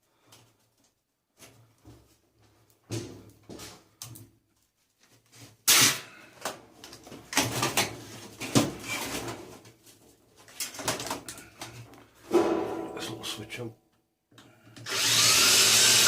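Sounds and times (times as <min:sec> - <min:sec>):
metal and plastic parts clattering: 0:05.7 - 0:09.7, 0:10.4 - 0:11.9.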